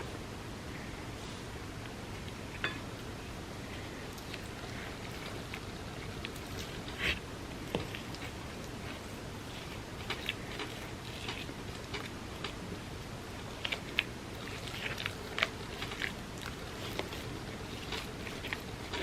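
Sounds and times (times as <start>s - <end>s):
wet chewing mouth clicks: 13.4s - 19.0s.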